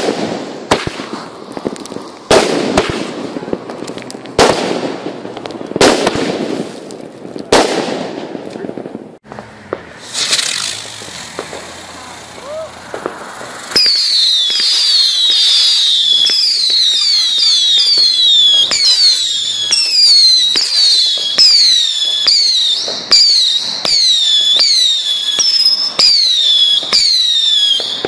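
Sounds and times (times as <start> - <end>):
firework pops: 0.0 - 28.0
falling firework whistles: 9.3 - 28.0.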